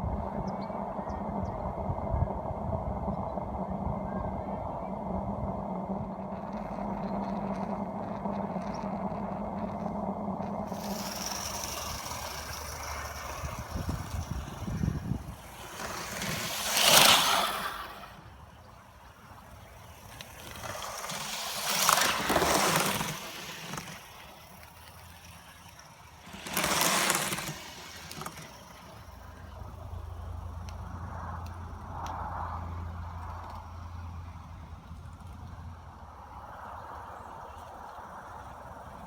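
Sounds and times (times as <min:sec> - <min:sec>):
low rumble: 0:00.0 - 0:23.6
steam locomotive hissing blasts: 0:10.7 - 0:18.5.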